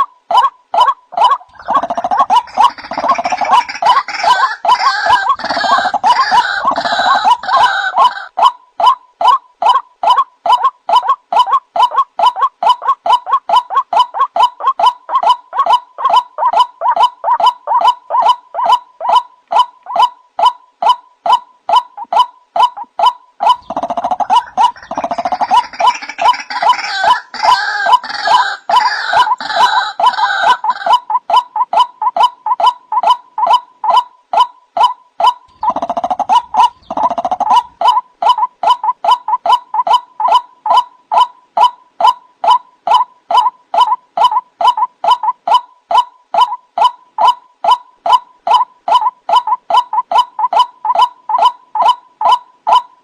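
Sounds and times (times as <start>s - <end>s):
waterhen harsh repeated calls: 0.0s - 53.0s
gurgling chorus of bird calls: 1.4s - 8.4s, 23.4s - 30.8s, 35.5s - 38.0s.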